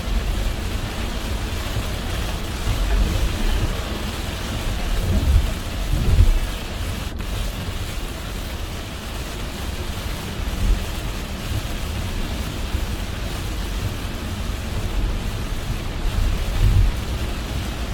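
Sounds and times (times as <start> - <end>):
car tyre and road noise: 0.0 - 17.9
heavy rain: 0.0 - 17.9.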